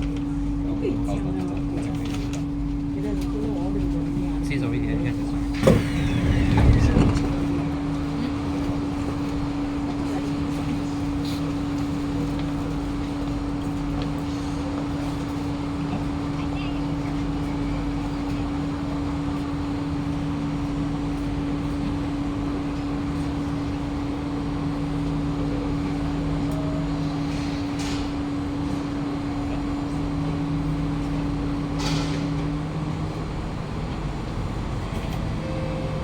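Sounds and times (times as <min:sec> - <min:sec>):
train equipment and ventilation hum: 0:00.0 - 0:36.0
held low tone: 0:34.9 - 0:36.0.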